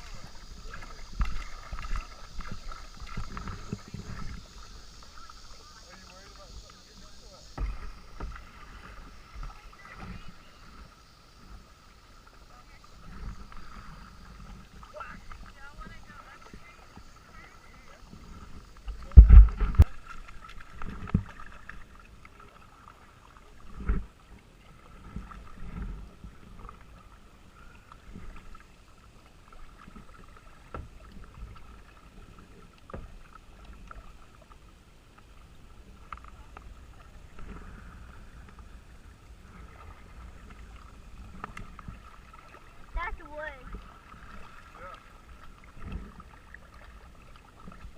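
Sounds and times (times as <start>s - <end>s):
paddle dipping in water: 0.0s - 47.9s
water sloshing against boat: 0.0s - 47.9s
dull low thumps: 19.0s - 19.9s.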